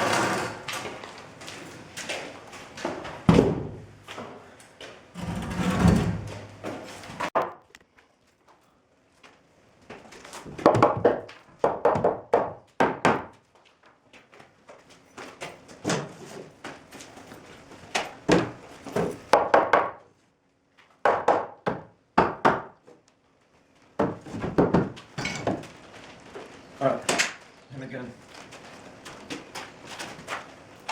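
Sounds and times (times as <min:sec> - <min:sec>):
wooden knocks and thuds: 0:03.2 - 0:03.8, 0:24.0 - 0:25.7.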